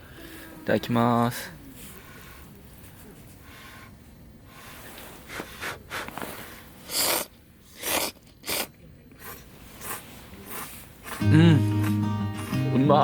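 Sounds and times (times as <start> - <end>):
person biting and chewing: 6.9 - 11.2.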